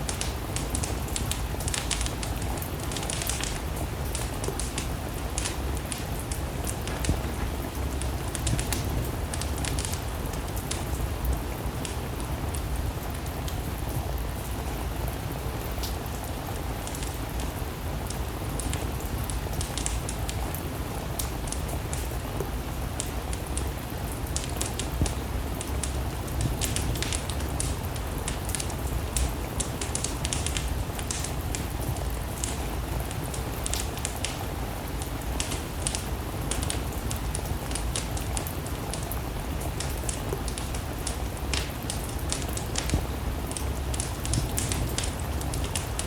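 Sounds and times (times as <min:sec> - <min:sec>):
rain falling: 0:00.0 - 0:46.0
wood fire crackling: 0:00.0 - 0:46.0.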